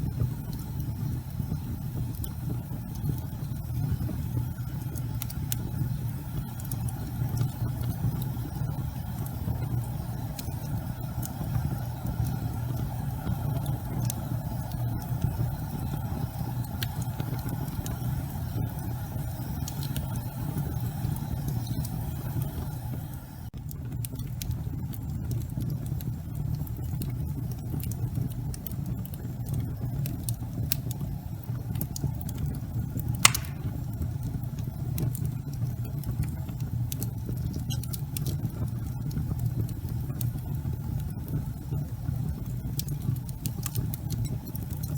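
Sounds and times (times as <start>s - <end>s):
fire flames rumbling: 0.0s - 44.9s
wood fire crackling: 0.0s - 44.9s
wood fire popping: 0.0s - 44.9s.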